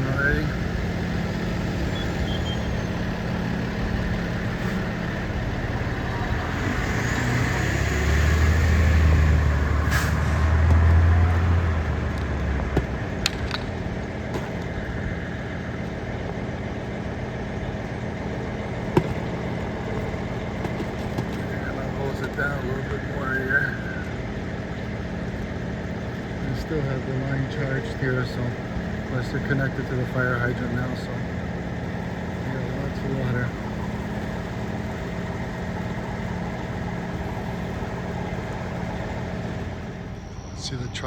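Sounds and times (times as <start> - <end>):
heavy truck engine rumbling: 0.0 - 41.0
air-brake hiss: 9.8 - 10.5.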